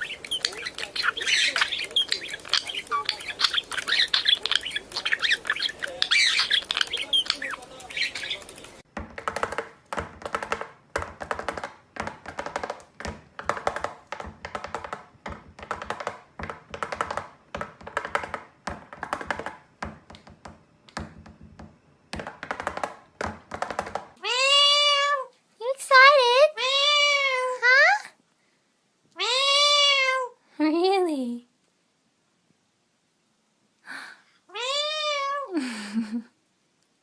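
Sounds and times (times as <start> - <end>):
cockatiel squawking and chirping: 0.0 - 8.6.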